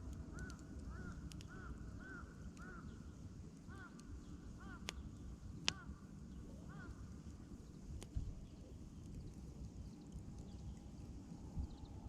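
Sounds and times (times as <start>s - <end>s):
fire popping: 0.0s - 1.6s
campfire burning: 0.0s - 11.7s.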